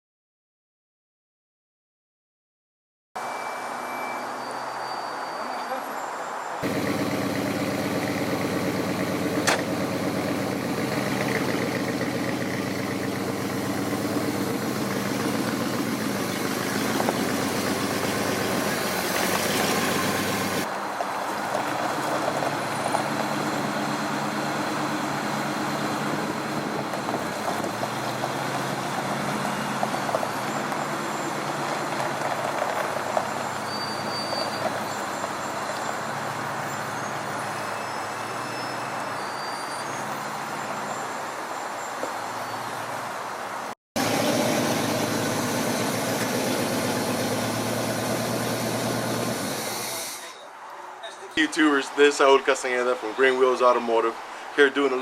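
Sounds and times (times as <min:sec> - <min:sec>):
car engine idling: 0:06.6 - 0:20.7, 0:21.5 - 0:33.5, 0:44.0 - 0:49.6.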